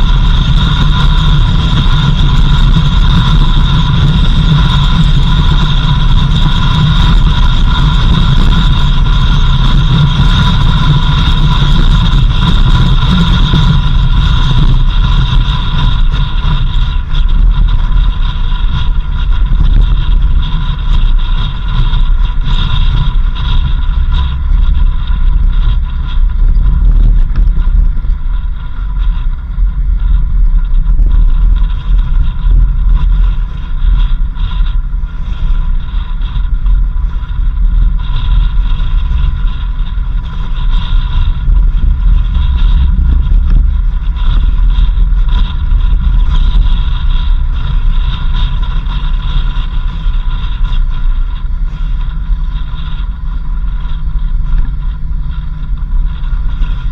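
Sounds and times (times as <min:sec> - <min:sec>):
steady whine: 0:00.0 - 0:56.9
vehicle rumbling on dirt road: 0:00.0 - 0:56.9.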